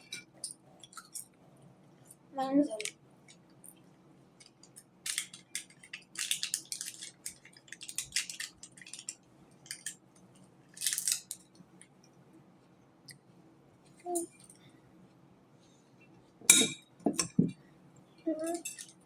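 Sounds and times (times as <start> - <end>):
wrappers crackling and crinkling: 4.4 - 10.1, 10.7 - 11.5.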